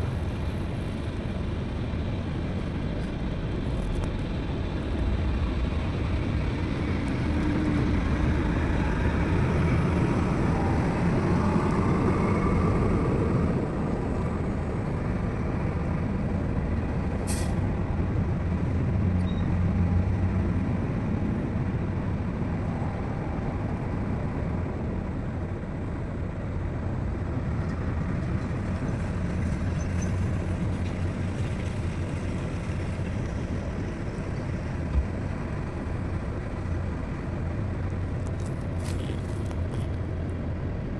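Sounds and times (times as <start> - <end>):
heavy diesel engines running: 0.0 - 40.9.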